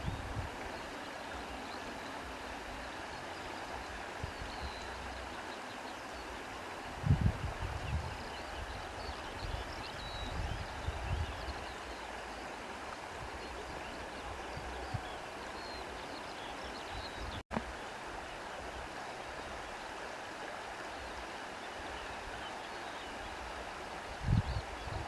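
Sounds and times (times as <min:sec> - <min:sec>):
stream flowing: 0:00.0 - 0:25.0.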